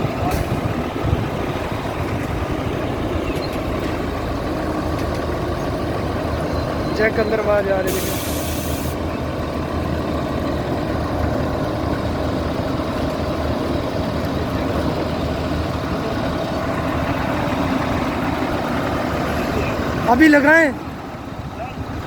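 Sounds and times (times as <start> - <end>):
grader diesel engine running: 0.0 - 22.0
faint hydraulic whine: 7.8 - 9.0.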